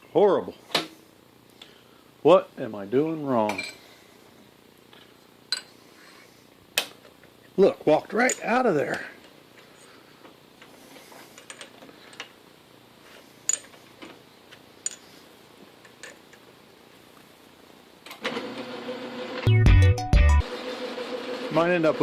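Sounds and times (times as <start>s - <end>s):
metallic clicks of tools handled: 13.5s - 13.8s.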